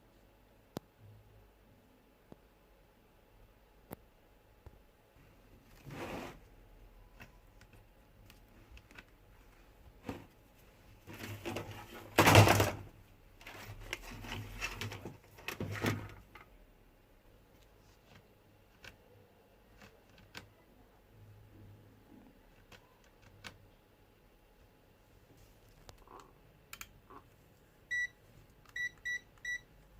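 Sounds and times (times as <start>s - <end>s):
rustling and scraping: 5.6s - 6.5s, 8.2s - 12.7s, 13.4s - 16.2s.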